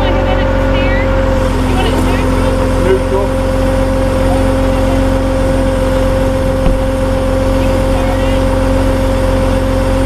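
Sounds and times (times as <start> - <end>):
truck engine rumbling: 0.0 - 10.0
short knock: 6.6 - 6.9.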